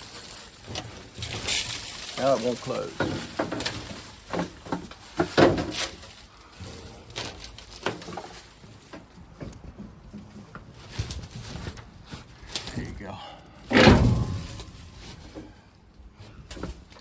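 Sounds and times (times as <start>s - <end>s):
knocks and clunks on truck hood: 13.7s - 15.2s.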